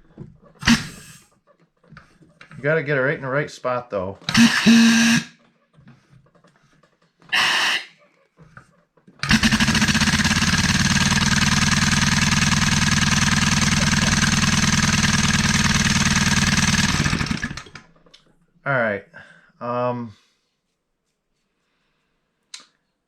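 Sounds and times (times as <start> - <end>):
air-powered engine running: 0.6 - 1.2, 4.3 - 5.3, 7.4 - 7.9, 9.2 - 17.8
short noise: 0.6 - 1.2, 7.3 - 8.0.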